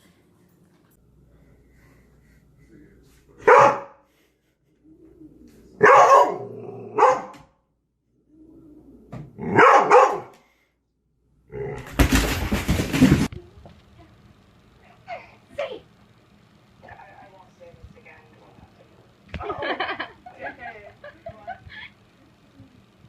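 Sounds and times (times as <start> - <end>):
dog barking: 3.4 - 4.0, 5.8 - 7.4, 9.5 - 10.3.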